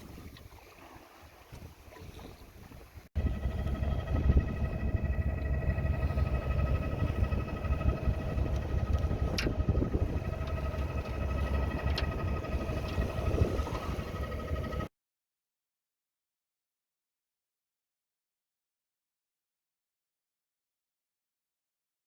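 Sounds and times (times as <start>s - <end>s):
motor running with whine: 3.2s - 14.9s.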